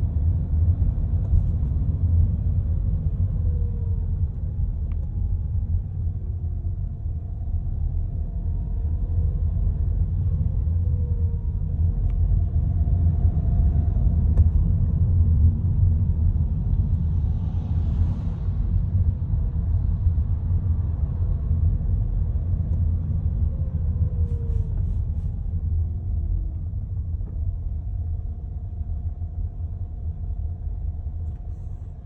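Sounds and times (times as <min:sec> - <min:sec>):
car low rumble: 0:00.0 - 0:32.0
faint whine sliding in pitch: 0:23.4 - 0:32.0.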